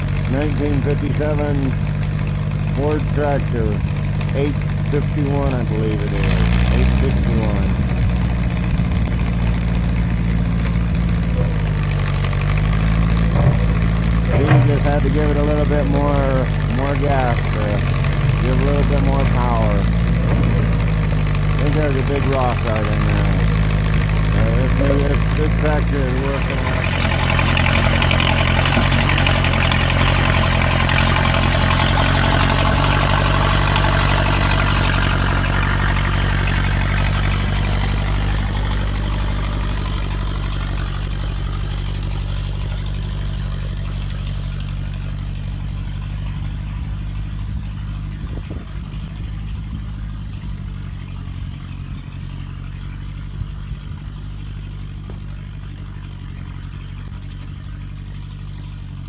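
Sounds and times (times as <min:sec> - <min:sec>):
tractor engine running: 0:00.0 - 0:59.0
metal clanks: 0:08.8 - 0:15.8, 0:19.8 - 0:22.0, 0:22.9 - 0:36.2.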